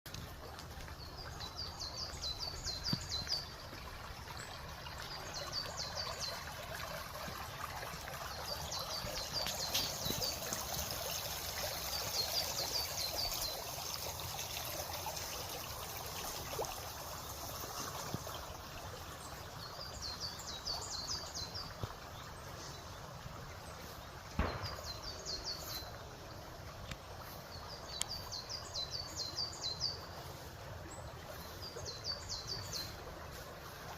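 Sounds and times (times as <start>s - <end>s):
trickling water: 0.0s - 33.9s
sharp knock: 24.4s - 25.0s.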